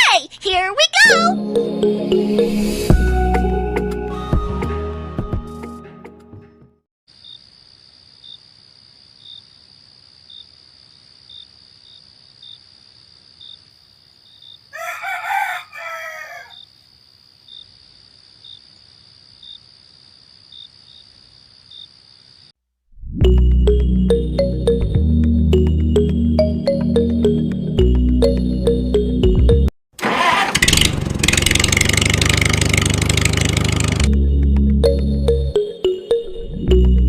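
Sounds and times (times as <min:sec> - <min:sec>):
rooster crowing: 0:14.7 - 0:16.7.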